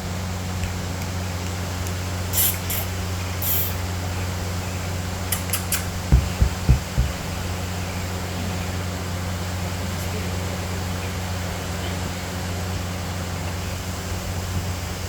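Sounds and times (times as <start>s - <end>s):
steady low hum: 0.0s - 15.0s
hissy rustles: 0.4s - 4.1s
quick clicks: 5.3s - 6.1s
low thumps: 6.0s - 7.7s.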